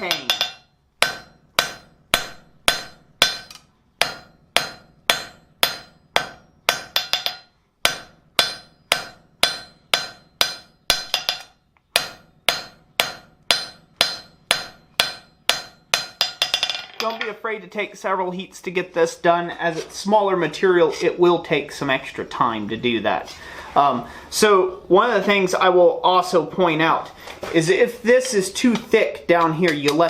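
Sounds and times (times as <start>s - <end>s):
hammer striking steel on anvil: 0.0s - 17.4s.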